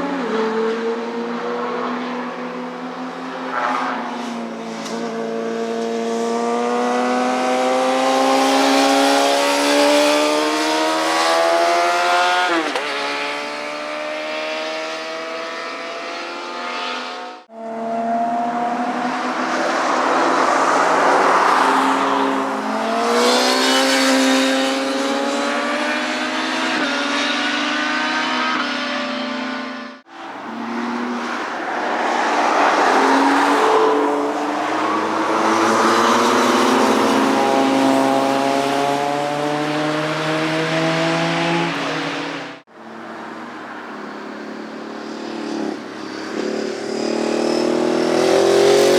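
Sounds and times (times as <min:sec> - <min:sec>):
motorcycles accelerating: 0:05.3 - 0:42.7, 0:45.0 - 0:48.9
motorcycle passing close: 0:45.0 - 0:48.9.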